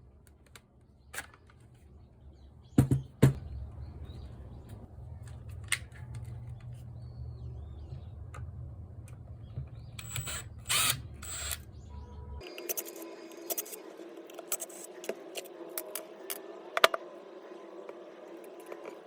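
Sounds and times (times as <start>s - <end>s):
clicks and knocks of small parts: 0.3s - 1.8s, 5.2s - 6.8s.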